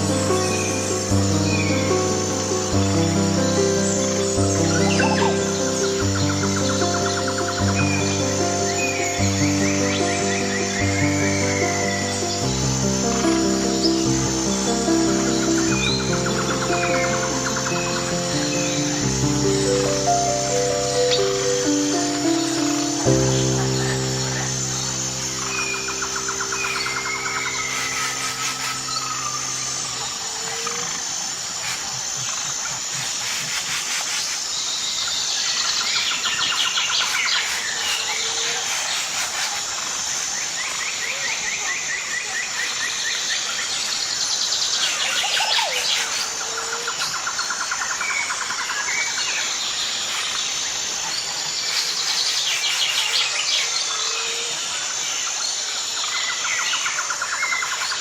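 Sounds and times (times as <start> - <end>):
high insect buzz: 0.0 - 35.0
birds chirping and trilling: 0.0 - 58.0.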